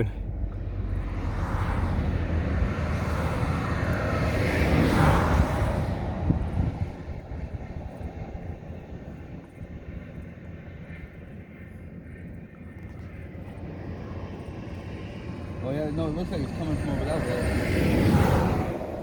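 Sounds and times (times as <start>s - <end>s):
vehicle passing by: 0.0s - 7.1s, 14.9s - 19.0s
steady low rumble: 0.0s - 19.0s.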